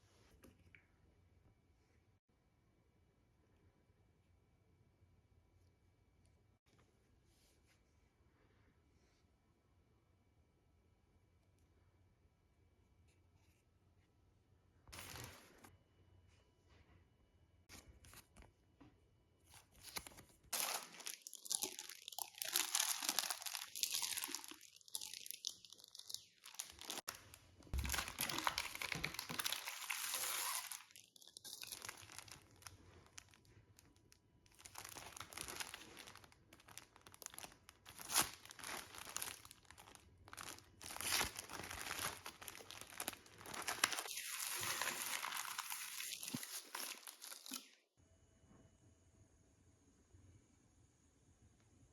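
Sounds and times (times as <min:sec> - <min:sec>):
packaging crinkling and tearing: 0:19.5 - 0:47.7.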